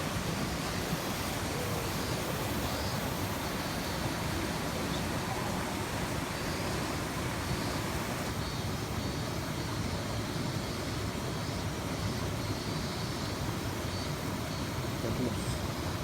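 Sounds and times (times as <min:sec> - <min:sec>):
stream rushing over rapid: 0:00.0 - 0:08.4.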